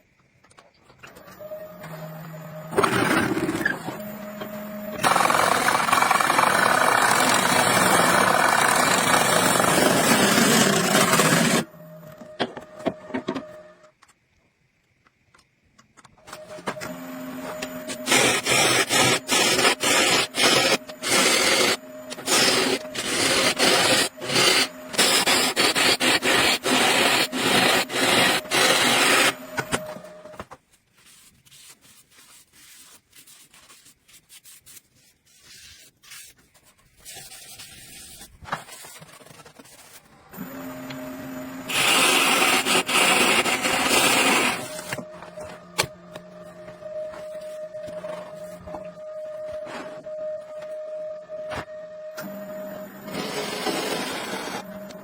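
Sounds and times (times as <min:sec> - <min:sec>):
hand tools scraping on wood: 0:17.4 - 0:29.8.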